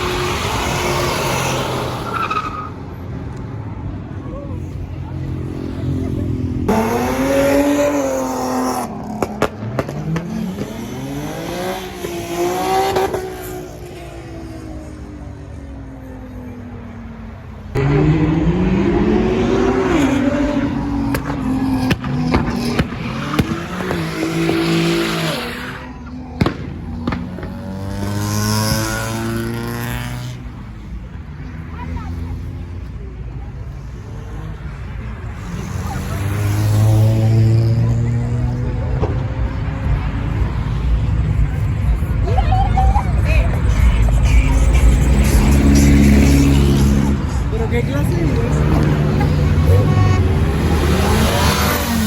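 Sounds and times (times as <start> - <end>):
car engine revving: 5.0 - 14.4, 17.7 - 30.8, 43.3 - 52.0
car engine revving hard: 6.6 - 13.5, 44.5 - 52.0.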